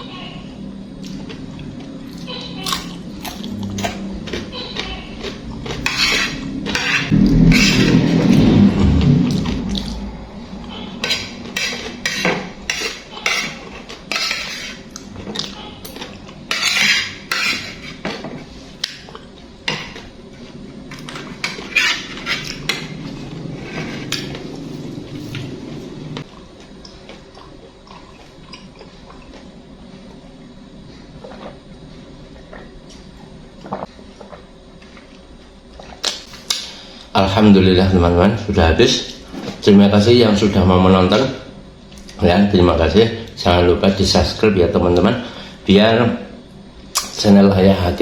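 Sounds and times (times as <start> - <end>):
cutlery scraping a dish: 5.2 - 8.4, 11.0 - 18.4, 21.1 - 23.0.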